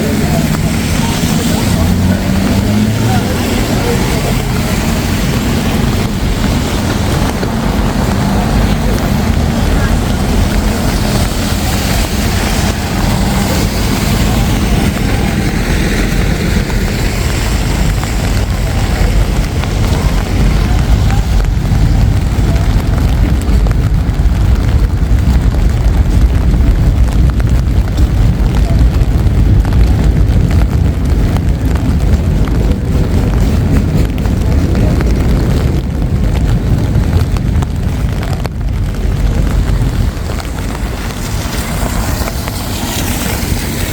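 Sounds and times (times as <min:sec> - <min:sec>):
city traffic noise: 0:00.0 - 0:43.9
wind buffeting microphone: 0:00.0 - 0:43.9.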